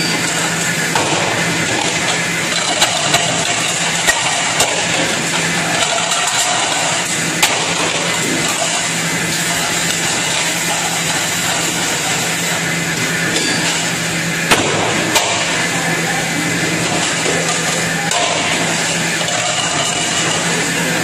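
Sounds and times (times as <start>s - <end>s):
dish machine humming: 0.0s - 21.0s
plates clacking: 16.6s - 21.0s.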